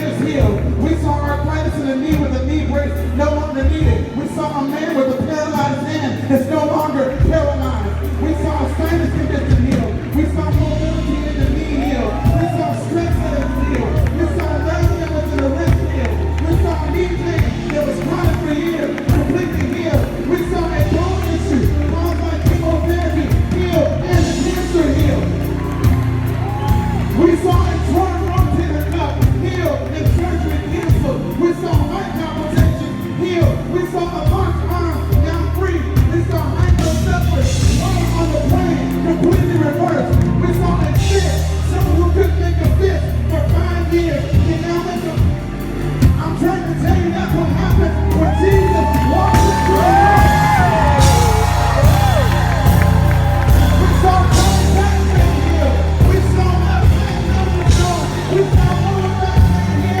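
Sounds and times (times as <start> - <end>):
worship music with heavy bass: 0.0 - 60.0
crowd shouts and whoops: 11.4 - 20.1, 24.2 - 29.3, 47.7 - 60.0
congregation singing: 48.4 - 60.0.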